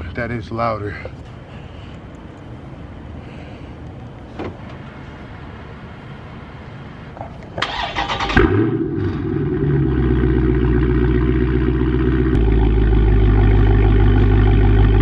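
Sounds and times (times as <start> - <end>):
car engine cranking and starting: 7.6 - 15.0.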